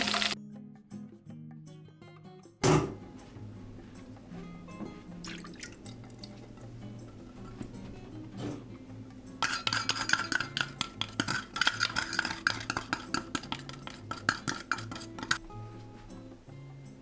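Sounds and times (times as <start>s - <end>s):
utensil clinking against bowl: 9.4s - 15.4s.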